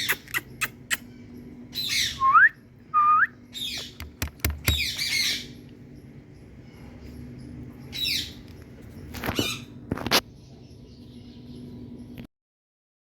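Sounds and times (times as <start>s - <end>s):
parrot squawking: 3.5s - 5.6s
parrot clicks: 3.8s - 5.0s.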